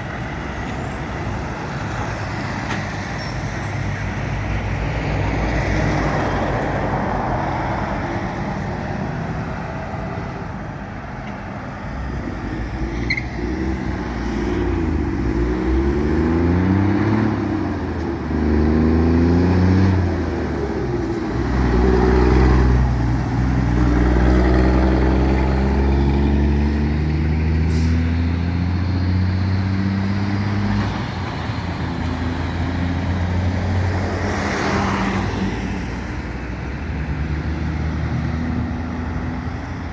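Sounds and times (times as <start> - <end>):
city traffic noise: 0.0 - 39.9
truck engine accelerating: 12.0 - 39.9.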